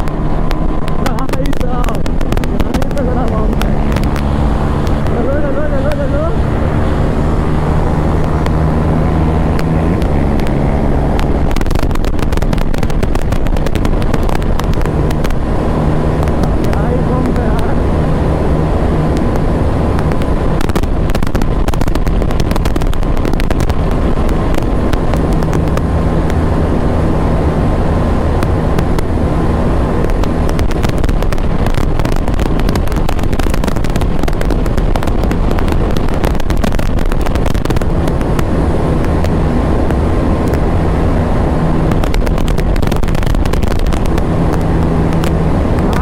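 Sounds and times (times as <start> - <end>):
dense crackle: 0.0 - 17.8, 18.5 - 27.2, 28.2 - 46.0
motorcycle engine at high revs: 0.0 - 46.0.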